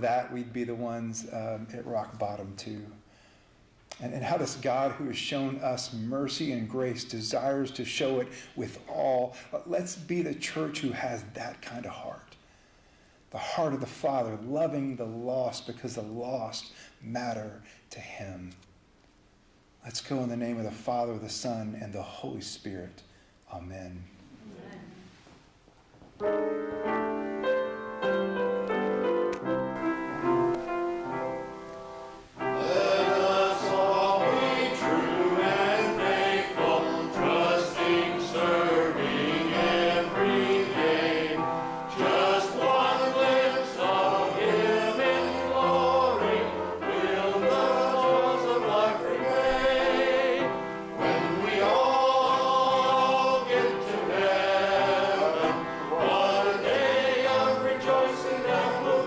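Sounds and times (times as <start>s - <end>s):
keyboard accompaniment: 26.2s - 59.0s
voices singing a hymn: 29.8s - 59.0s.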